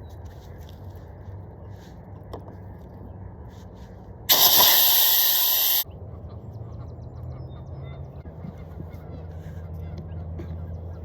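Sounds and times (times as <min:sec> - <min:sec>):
air hissing from a valve: 0:04.3 - 0:05.8.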